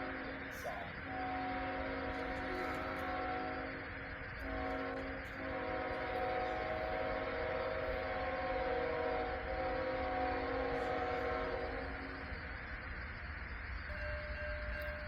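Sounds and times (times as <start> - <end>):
train rumble: 0.0 - 15.0
locomotive air horn: 1.1 - 3.8, 4.4 - 12.1, 13.9 - 15.0.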